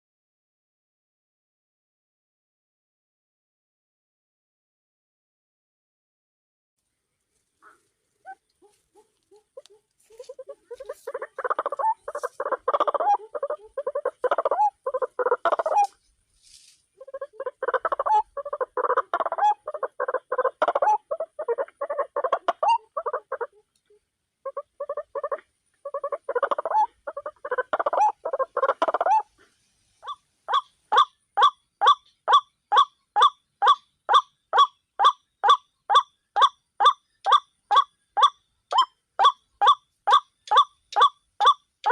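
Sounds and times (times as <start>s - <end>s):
waterhen harsh croaking calls: 7.6s - 16.0s, 17.0s - 23.6s, 24.4s - 29.4s, 30.0s - 41.9s.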